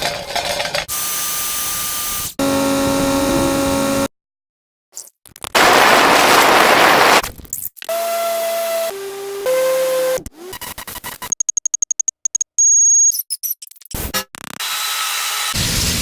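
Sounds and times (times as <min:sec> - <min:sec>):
buzzing hum with tones: 0:02.3 - 0:04.1.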